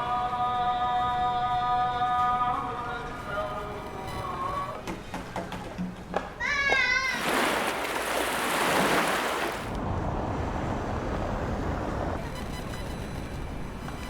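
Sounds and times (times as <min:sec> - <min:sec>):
wave rushing in: 0:07.4 - 0:12.2
rumble of water: 0:07.6 - 0:12.4.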